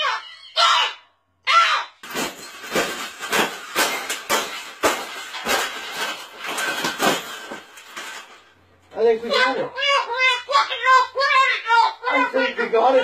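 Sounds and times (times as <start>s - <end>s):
wire cage crunching and rattling: 2.0s - 8.8s.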